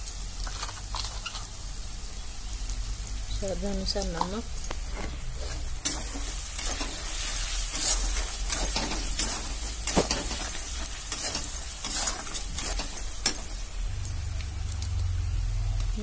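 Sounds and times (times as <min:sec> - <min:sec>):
masala sizzling in hot oil: 0:00.0 - 0:16.0
metal spatula scraping a pan: 0:04.8 - 0:13.7.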